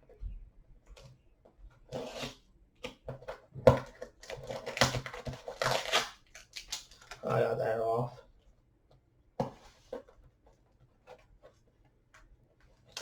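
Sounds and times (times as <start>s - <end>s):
tape tearing off cardboard: 4.3s - 6.9s.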